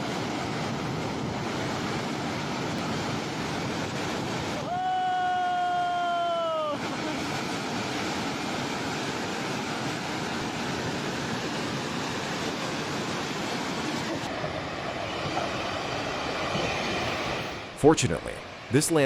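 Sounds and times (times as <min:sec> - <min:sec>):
flash flood water rushing: 0:00.0 - 0:19.0.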